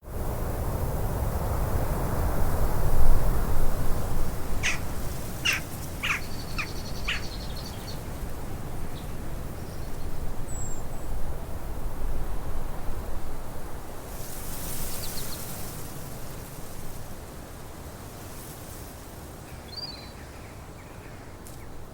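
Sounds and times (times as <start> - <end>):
wild birds calling sharply: 4.5 - 9.2
thin high bird trill: 4.6 - 8.0.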